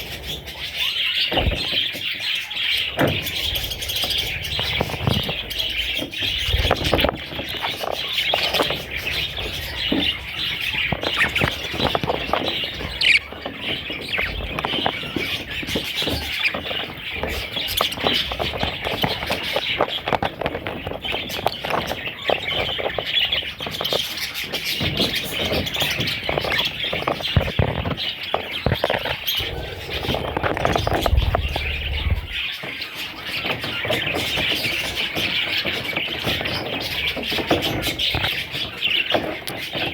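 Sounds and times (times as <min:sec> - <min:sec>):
bird squawks: 0:00.0 - 0:19.7
budgerigars chirping: 0:00.0 - 0:39.9.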